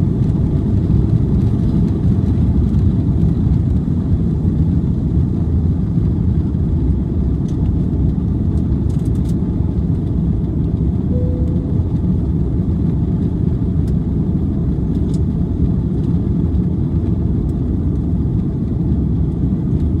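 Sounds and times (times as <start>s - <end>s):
airplane cabin roar: 0.0s - 20.0s
faint short tone: 11.1s - 12.3s.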